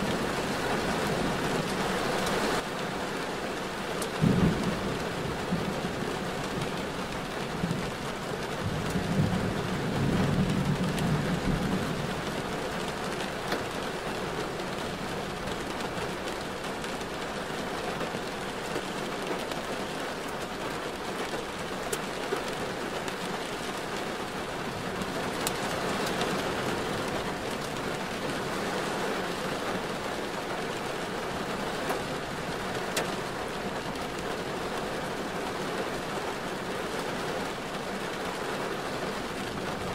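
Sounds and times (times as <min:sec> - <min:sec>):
rain pattering on a car: 0:00.0 - 0:39.9
wet road noise: 0:00.0 - 0:39.9
sharp raindrop ticks: 0:04.0 - 0:04.7, 0:25.0 - 0:26.4, 0:32.8 - 0:33.2.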